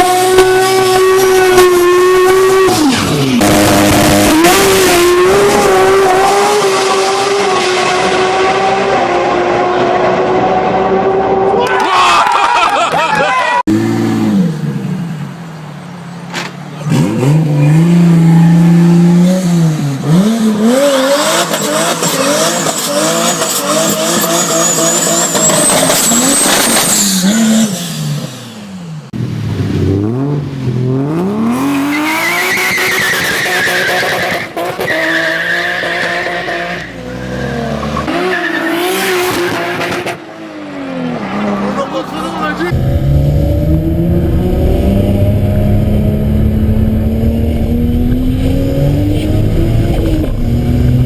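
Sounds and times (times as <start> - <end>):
car engine revving: 0.0 - 11.6, 16.5 - 51.0
tire squeal: 17.6 - 19.3, 31.6 - 40.1
high whine: 42.7 - 50.5.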